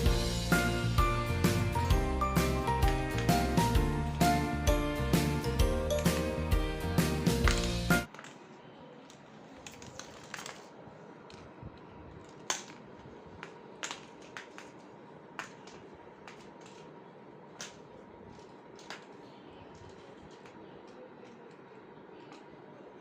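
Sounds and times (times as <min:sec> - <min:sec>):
faint room noise: 0:07.5 - 0:23.0.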